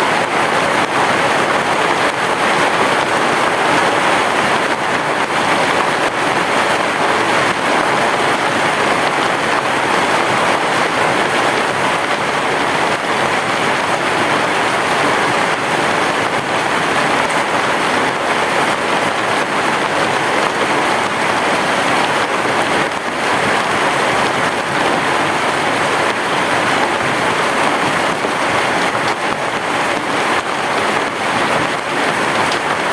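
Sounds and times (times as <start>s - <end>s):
heavy rain on a roof: 0.0s - 32.9s.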